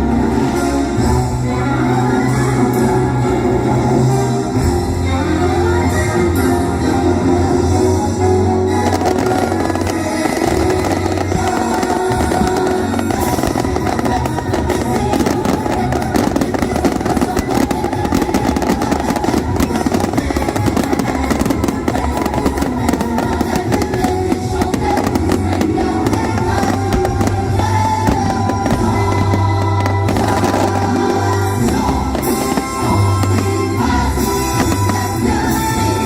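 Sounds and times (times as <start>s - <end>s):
loud show music: 0.0s - 36.0s
fireworks bursting and crackling: 7.6s - 36.0s.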